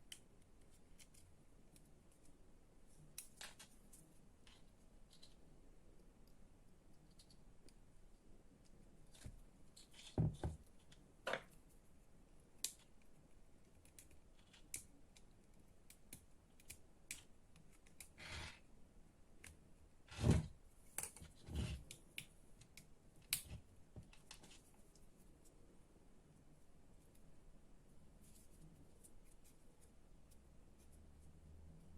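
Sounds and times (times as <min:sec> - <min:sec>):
small parts clicking and tapping: 0:03.0 - 0:07.9, 0:12.4 - 0:18.2.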